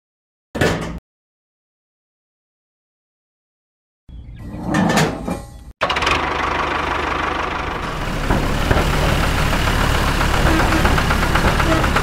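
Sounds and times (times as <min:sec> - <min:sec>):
small motor rattling: 0:05.8 - 0:12.0.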